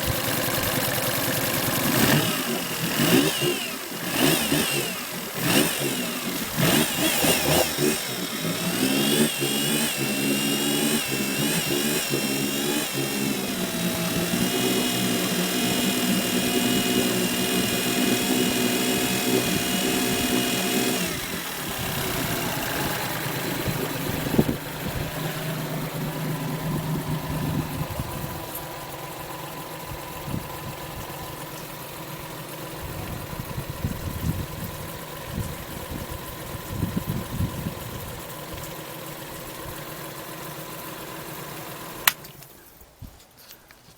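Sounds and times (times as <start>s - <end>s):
outboard motor revving and idling: 0.0s - 42.3s
sharp click: 42.0s - 42.6s.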